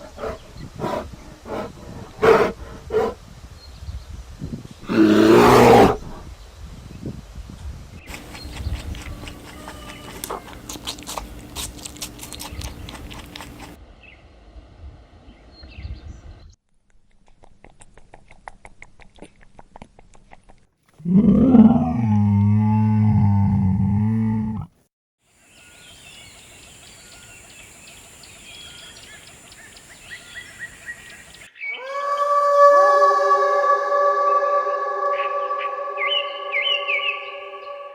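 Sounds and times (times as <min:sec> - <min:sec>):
birds chirping: 0:00.0 - 0:03.2, 0:08.0 - 0:13.8, 0:25.6 - 0:37.9
animal chewing with crunching clicks: 0:08.0 - 0:13.8, 0:16.7 - 0:21.0
sustained musical tone: 0:34.4 - 0:37.9.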